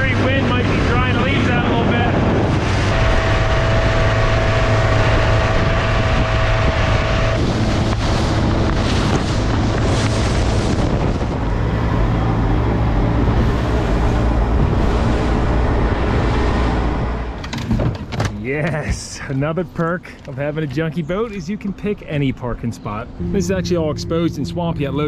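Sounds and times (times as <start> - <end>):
wind buffeting microphone: 0.0 - 18.1
boat engine running: 0.0 - 18.5, 19.8 - 25.0
thin steady whine: 23.2 - 25.0.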